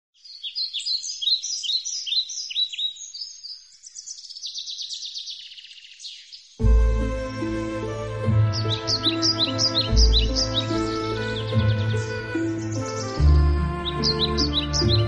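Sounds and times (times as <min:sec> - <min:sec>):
songbird singing: 0:00.1 - 0:15.0
music with deep bass: 0:06.6 - 0:15.0.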